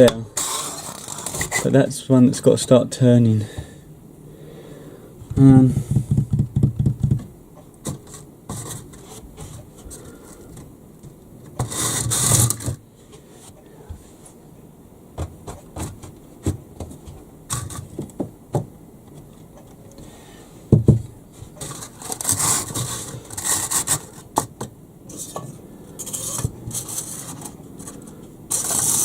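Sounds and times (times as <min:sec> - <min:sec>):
rustling: 0:00.4 - 0:01.8, 0:21.3 - 0:24.4, 0:25.1 - 0:29.0.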